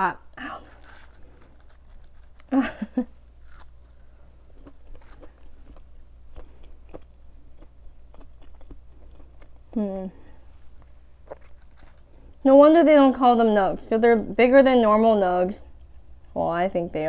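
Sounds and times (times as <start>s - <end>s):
crunchy chewing mouth sounds: 3.4s - 12.2s.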